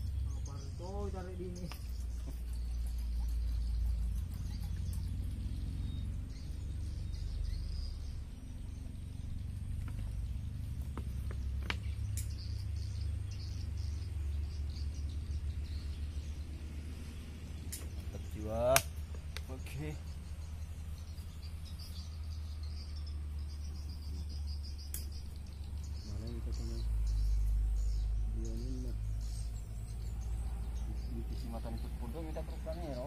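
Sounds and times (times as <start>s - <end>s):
birds chirping: 0.0s - 33.0s
steady low rumble: 0.0s - 33.0s
sharp clicks: 11.0s - 12.7s, 17.7s - 18.1s, 18.7s - 19.6s, 24.8s - 25.5s.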